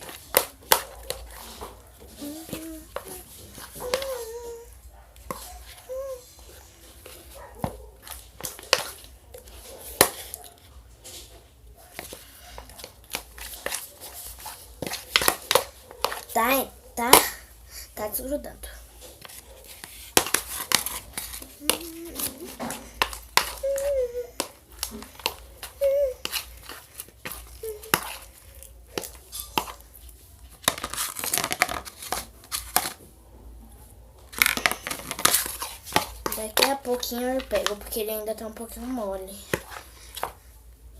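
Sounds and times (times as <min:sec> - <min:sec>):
slime squelching and crackling: 0:34.3 - 0:40.4.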